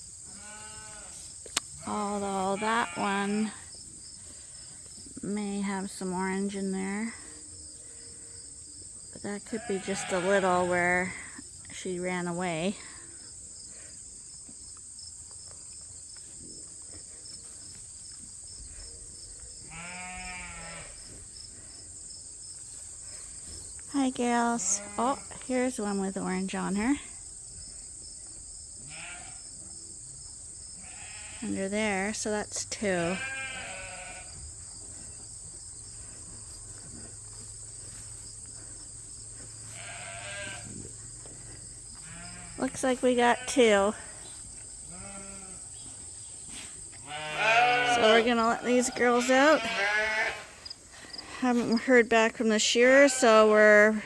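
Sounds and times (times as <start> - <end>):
insects chirring: 0.0 - 54.0
sheep bleating: 0.3 - 1.2, 1.8 - 3.5, 9.6 - 11.0, 19.7 - 21.0, 28.9 - 29.4, 30.8 - 31.6, 33.0 - 34.3, 39.6 - 40.8, 42.0 - 44.0, 44.9 - 45.6, 47.0 - 50.6.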